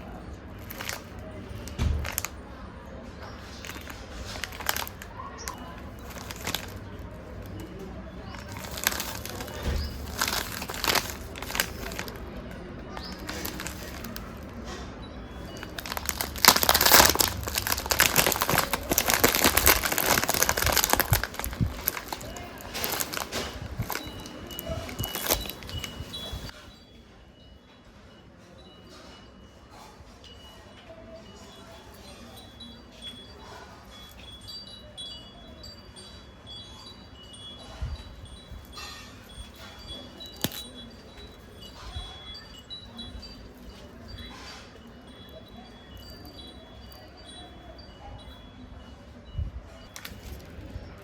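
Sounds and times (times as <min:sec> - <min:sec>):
chimes tinkling: 0:00.1 - 0:02.4, 0:03.2 - 0:51.0
plastic packet crinkling: 0:00.5 - 0:02.4, 0:03.2 - 0:14.6, 0:15.4 - 0:26.5, 0:38.7 - 0:44.4, 0:49.8 - 0:50.6.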